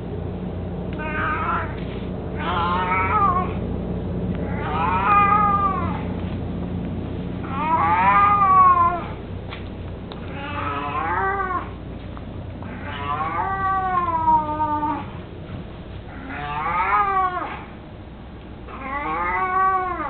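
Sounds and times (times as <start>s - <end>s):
cat meowing: 1.0s - 3.6s, 4.4s - 6.1s, 7.4s - 9.2s, 10.2s - 11.8s, 12.6s - 15.2s, 16.1s - 17.7s, 18.7s - 20.0s.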